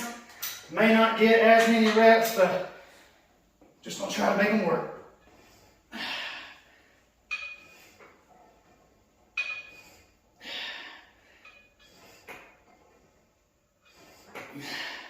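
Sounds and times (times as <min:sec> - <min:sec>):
metal weight stack clinking: 0:00.1 - 0:02.5, 0:07.2 - 0:10.1.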